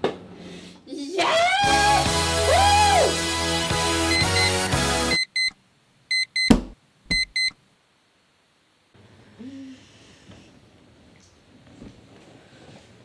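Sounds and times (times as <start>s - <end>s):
alarm clock beeping: 4.1s - 6.5s, 7.1s - 7.5s.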